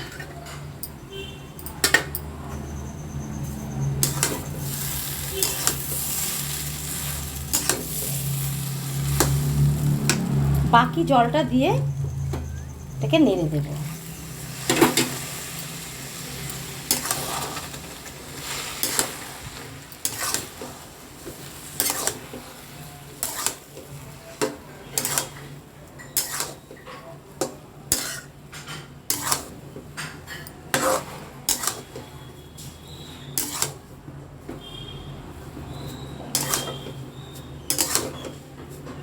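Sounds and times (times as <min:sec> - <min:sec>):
utensil scraping a pan: 0:03.5 - 0:10.6, 0:13.9 - 0:33.9, 0:35.6 - 0:39.0.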